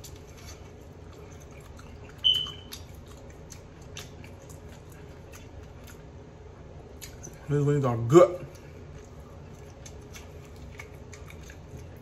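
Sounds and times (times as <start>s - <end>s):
person chewing food: 0.0s - 7.5s, 8.4s - 12.0s
short high-pitched beep: 2.2s - 2.7s.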